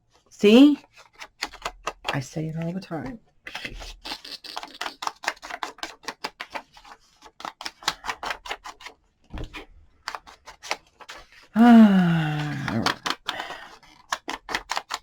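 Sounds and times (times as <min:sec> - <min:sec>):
paper crafting clicks and taps: 0:00.8 - 0:02.8, 0:04.9 - 0:11.2, 0:12.4 - 0:15.0.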